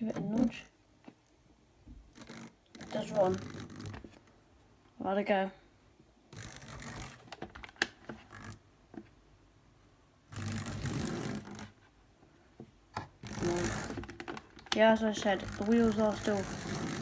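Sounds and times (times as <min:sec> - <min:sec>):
model train motor and wheel clatter: 0:15.2 - 0:17.0.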